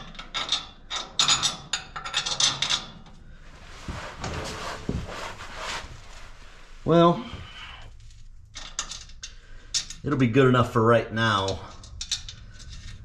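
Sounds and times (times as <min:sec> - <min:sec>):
steady hiss: 0:03.4 - 0:08.0.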